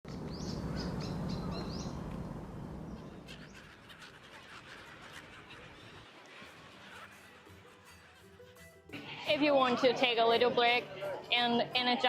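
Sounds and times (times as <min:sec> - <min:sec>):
low rumble: 0:00.1 - 0:03.3
gulls calling: 0:00.1 - 0:12.0.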